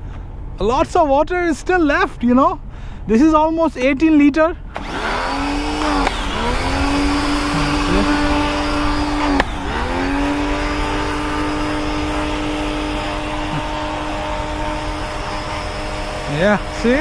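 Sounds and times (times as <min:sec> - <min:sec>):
pressure washer motor whine: 0:04.8 - 0:17.0.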